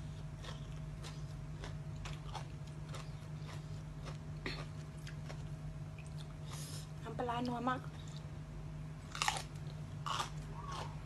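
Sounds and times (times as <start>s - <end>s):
person chewing crunchy food: 0.0s - 6.9s, 9.0s - 11.0s
steady low hum: 0.0s - 11.0s.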